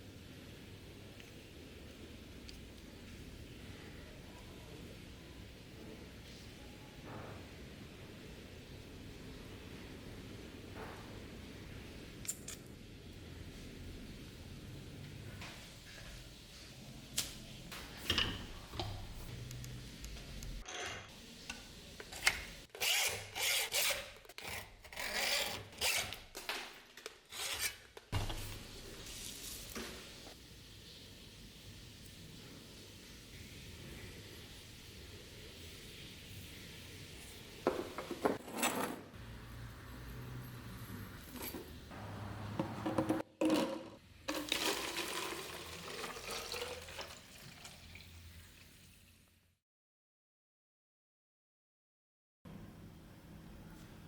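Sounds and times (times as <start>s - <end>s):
hand tool rasping: 22.7s - 26.4s.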